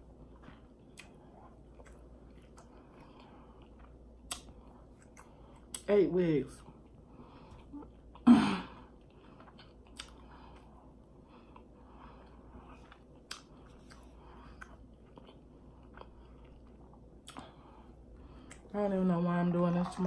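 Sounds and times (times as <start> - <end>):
person chewing food: 0.0 - 5.9, 8.8 - 18.7.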